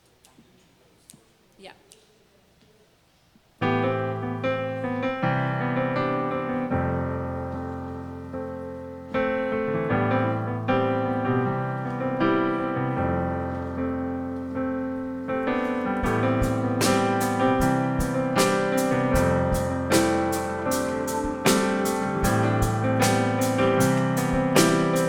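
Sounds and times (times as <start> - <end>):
slow piano chords: 3.6 - 25.0
short percussive beat: 16.0 - 25.0.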